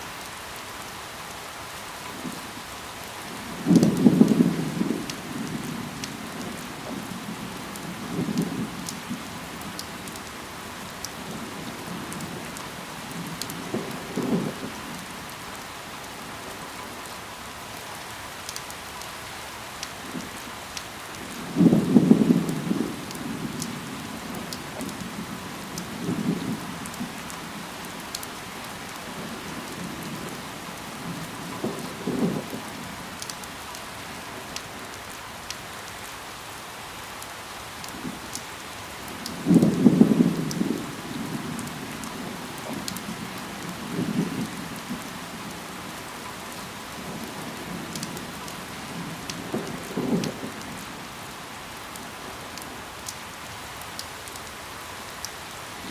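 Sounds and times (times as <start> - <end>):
rain falling on leaves: 0.0 - 55.9
sharp drip ticks: 9.6 - 11.2, 17.8 - 21.4, 33.2 - 33.9, 41.6 - 43.8, 47.2 - 48.6.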